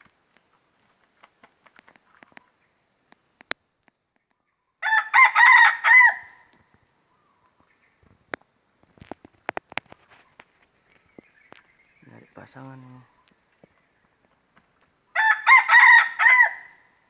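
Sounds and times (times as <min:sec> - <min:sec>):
rooster crowing: 0:04.8 - 0:06.5, 0:15.1 - 0:16.9.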